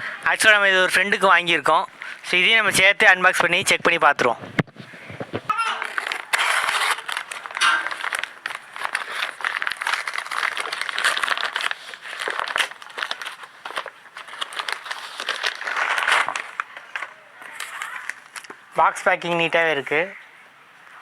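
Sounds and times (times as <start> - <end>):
packaging crinkling and rustling: 5.8 - 18.7.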